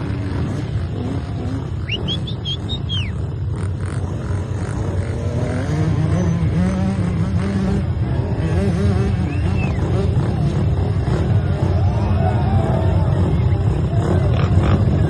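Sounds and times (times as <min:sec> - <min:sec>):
motorcycle engine running: 0:00.0 - 0:15.0
short high chirps: 0:01.8 - 0:03.2.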